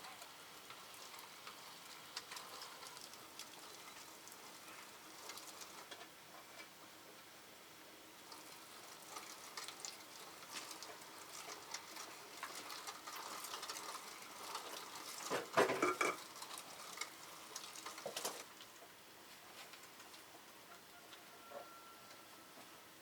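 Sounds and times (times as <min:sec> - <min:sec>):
campfire crackling: 0:00.0 - 0:06.7, 0:08.2 - 0:20.4
cookware clatter: 0:12.5 - 0:17.1.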